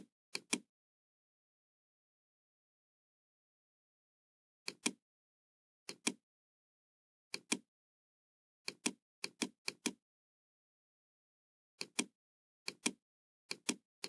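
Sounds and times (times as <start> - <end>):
computer mouse clicking: 0.4 - 0.6, 4.7 - 5.0, 5.9 - 6.2, 7.3 - 7.6, 8.7 - 10.0, 11.8 - 12.1, 12.7 - 13.8.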